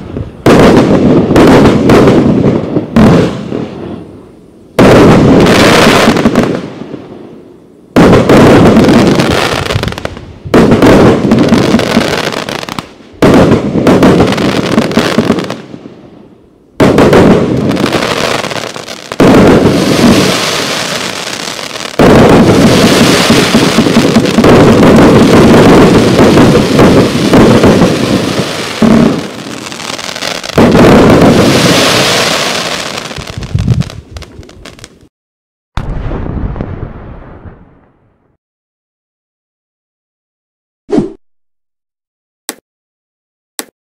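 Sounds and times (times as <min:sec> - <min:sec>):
firework bangs: 0:00.0 - 0:04.0, 0:04.8 - 0:07.2, 0:07.9 - 0:16.0, 0:16.8 - 0:35.1
firework crackling and hissing: 0:00.0 - 0:35.1.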